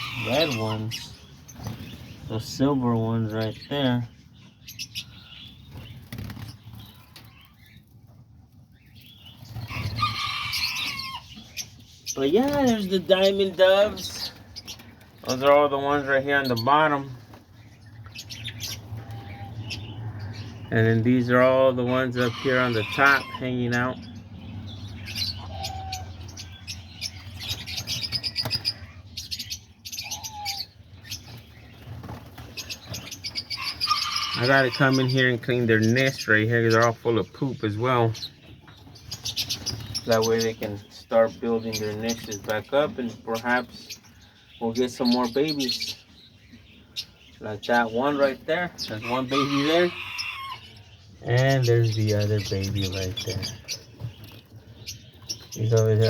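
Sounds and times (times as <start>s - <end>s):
birds chirping: 0.0s - 56.0s
wings flapping: 5.6s - 8.0s, 12.0s - 19.7s, 31.0s - 35.1s, 38.8s - 40.9s.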